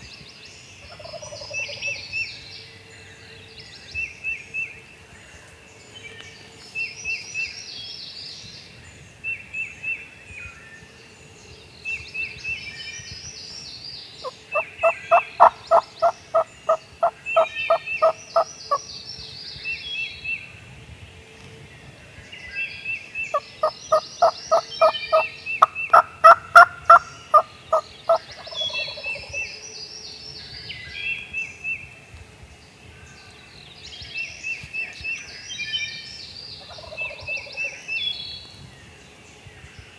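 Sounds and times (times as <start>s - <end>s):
small birds singing: 0.0s - 39.9s
wild turkeys calling: 14.2s - 18.8s, 23.3s - 29.3s, 36.6s - 37.5s.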